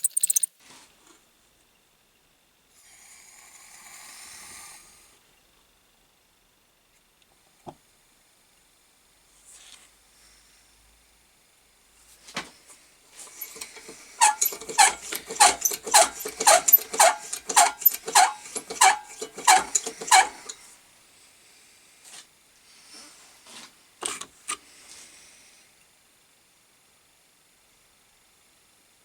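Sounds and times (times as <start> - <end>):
hand pump valve squeaking: 13.4 - 20.6.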